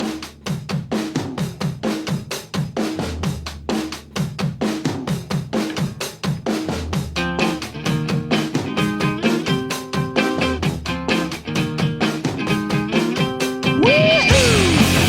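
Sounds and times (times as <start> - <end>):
drum kit beat: 0.0 - 15.0
falling low drum notes: 13.8 - 15.0.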